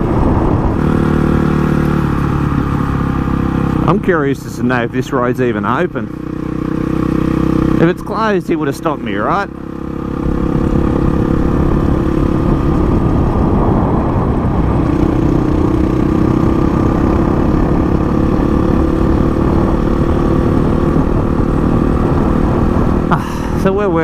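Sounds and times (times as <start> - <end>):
motorcycle engine cruising: 0.0 - 24.0
rushing wind: 0.0 - 24.0.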